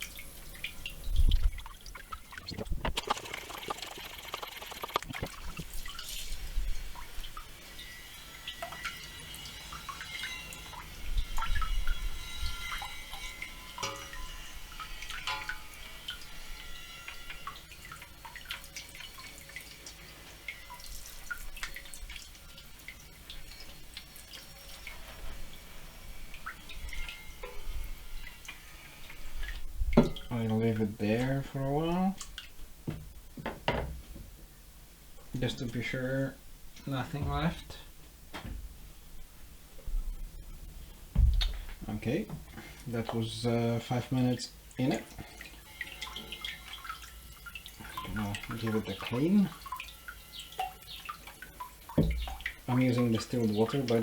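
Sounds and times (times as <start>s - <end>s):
liquid splashing: 1.2s - 7.4s.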